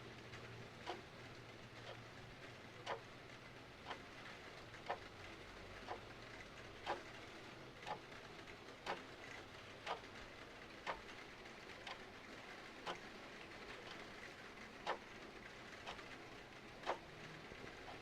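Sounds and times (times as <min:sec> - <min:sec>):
soft hiss of rain: 0:00.0 - 0:18.0
clock ticking: 0:00.8 - 0:01.0, 0:02.8 - 0:03.1, 0:03.8 - 0:04.0, 0:04.8 - 0:05.1, 0:05.8 - 0:06.1, 0:06.8 - 0:07.1, 0:07.8 - 0:08.0, 0:08.8 - 0:09.2, 0:09.8 - 0:10.2, 0:10.8 - 0:11.2, 0:11.8 - 0:12.1, 0:12.8 - 0:13.0, 0:14.8 - 0:15.1, 0:15.8 - 0:18.0.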